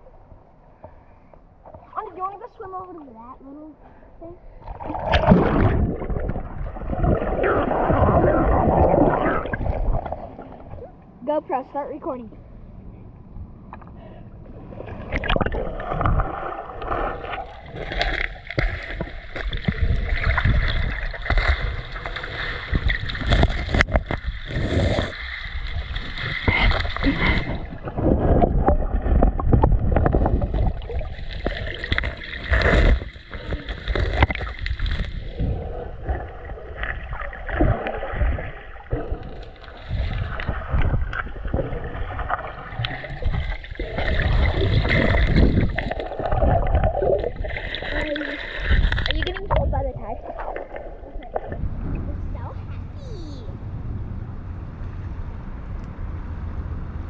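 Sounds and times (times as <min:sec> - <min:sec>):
river water sloshing and splashing: 0:04.5 - 0:11.3, 0:14.5 - 0:52.8.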